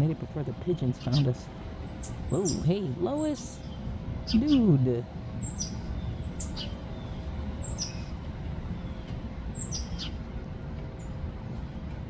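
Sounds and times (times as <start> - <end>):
low background rumble: 0.0 - 12.0
songbird call notes: 0.7 - 4.7, 5.4 - 10.3.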